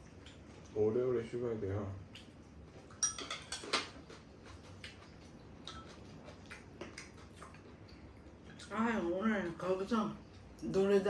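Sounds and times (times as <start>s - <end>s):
spoon clinking on bowl: 3.0s - 3.8s.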